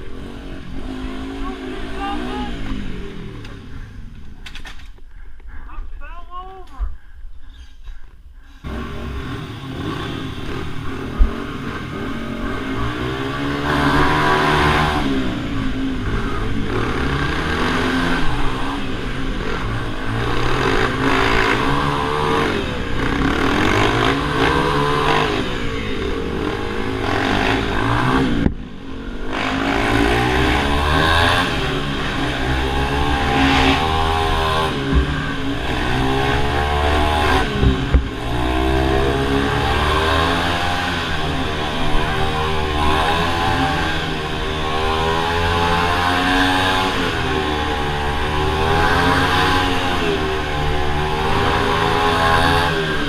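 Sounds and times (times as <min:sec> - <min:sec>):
minibike engines revving: 0:00.0 - 0:05.1, 0:08.6 - 0:53.0.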